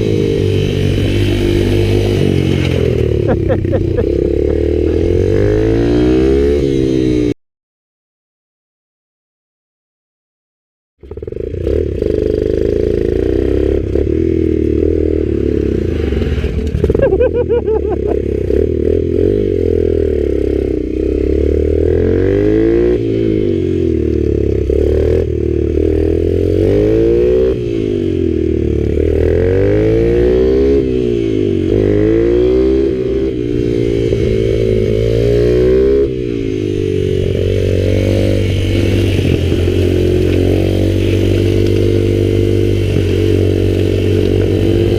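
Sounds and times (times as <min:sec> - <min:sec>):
mini bike engine revving: 0:11.0 - 0:44.9.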